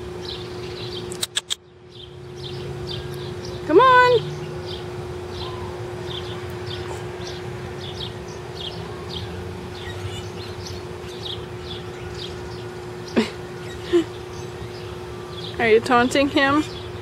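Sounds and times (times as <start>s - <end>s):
steady low hum: 0.0s - 17.0s
bird chirping: 4.2s - 17.0s.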